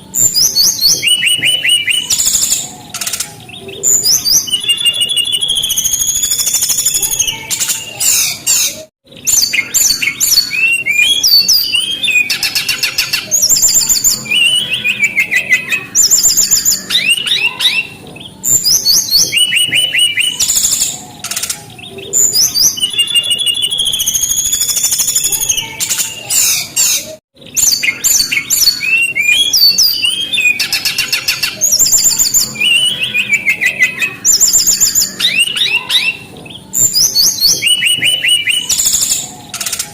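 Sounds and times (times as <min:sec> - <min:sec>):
bird song with whistles and trills: 0:00.0 - 0:39.9.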